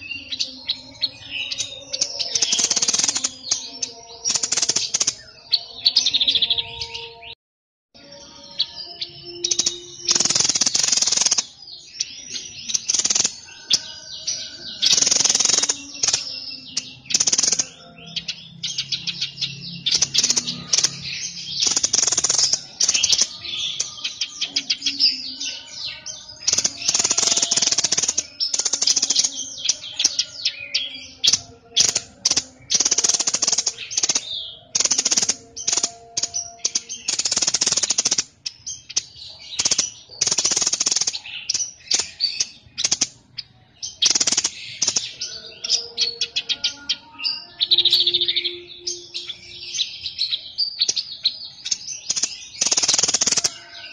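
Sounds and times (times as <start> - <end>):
songbird singing harsh bursts: 26.4 - 29.4.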